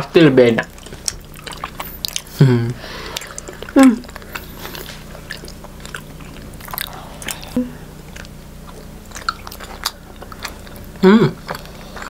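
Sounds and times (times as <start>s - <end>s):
people chewing sticky food: 0.0s - 12.0s
wet mouth clicks and smacks: 8.1s - 10.5s.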